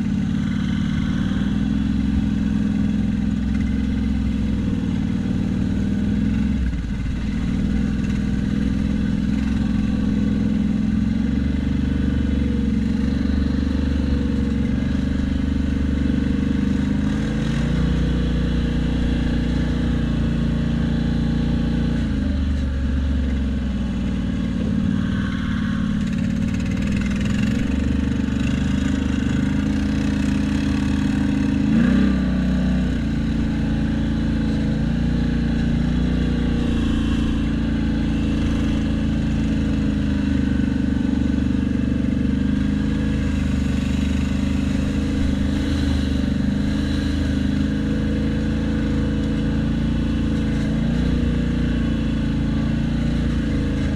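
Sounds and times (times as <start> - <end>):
vehicle engine running: 0.0 - 53.9.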